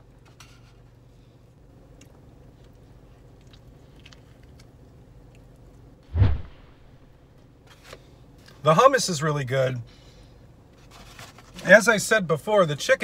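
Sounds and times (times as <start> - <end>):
person chewing a sandwich: 1.9 - 5.9
short loud low sound: 6.1 - 7.2.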